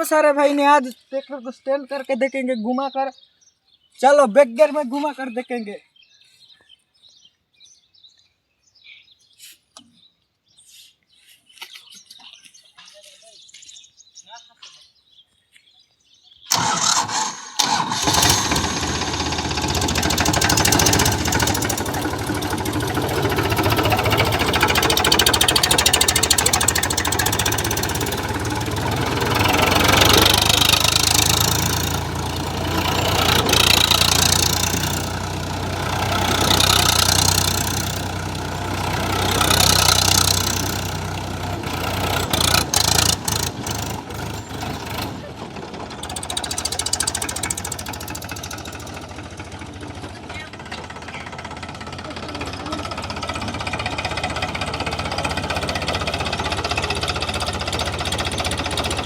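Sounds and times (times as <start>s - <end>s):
tractor diesel engine running: 16.5s - 59.0s.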